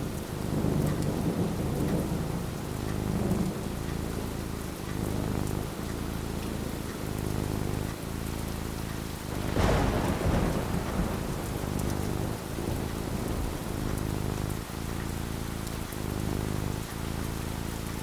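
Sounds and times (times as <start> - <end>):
steady rain falling: 0.0 - 18.0
thunder clap rumbling: 9.2 - 16.9.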